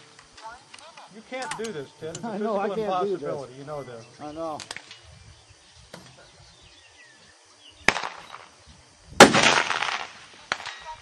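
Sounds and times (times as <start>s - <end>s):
quieter pistol shot: 7.8s - 8.4s, 9.2s - 10.8s
loud pistol shot: 7.9s - 8.3s, 9.2s - 10.8s.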